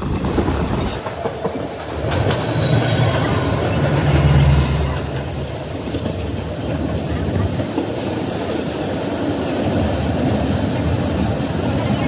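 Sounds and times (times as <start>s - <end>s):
diesel locomotive engine rumble: 0.0s - 12.0s
train clattering: 0.0s - 12.0s
high wheel squeal: 1.6s - 6.0s.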